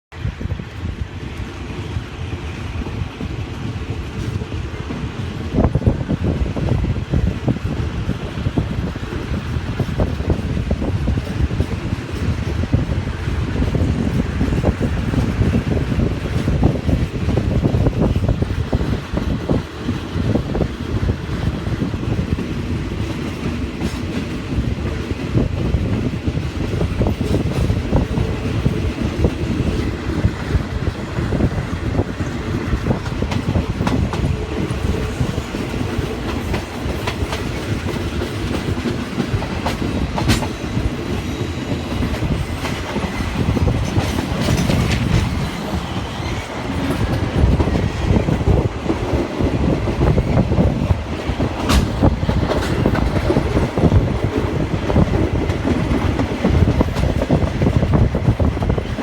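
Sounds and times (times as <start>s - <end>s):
train rumbling: 0.1s - 59.0s
wheels clacking over rail joints: 26.6s - 59.0s.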